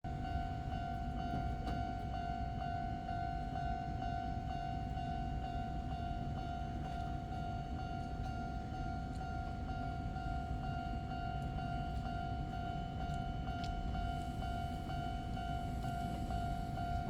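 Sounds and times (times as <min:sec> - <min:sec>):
electric train rumbling: 0:00.1 - 0:17.0
pulsing high ringing tone: 0:12.6 - 0:17.0.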